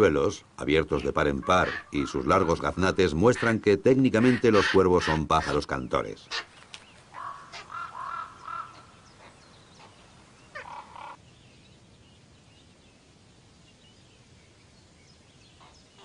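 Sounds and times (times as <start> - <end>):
raven nestlings begging calls: 0.9 - 11.2.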